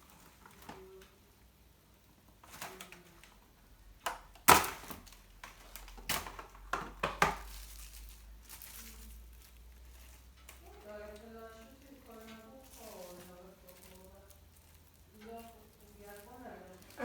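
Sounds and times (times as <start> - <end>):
objects knocking and clattering: 4.0 - 8.0.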